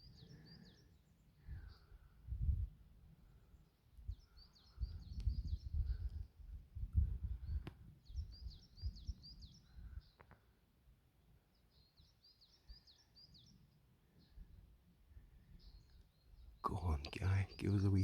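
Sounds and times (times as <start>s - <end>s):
woodpecker calling: 16.7s - 18.0s.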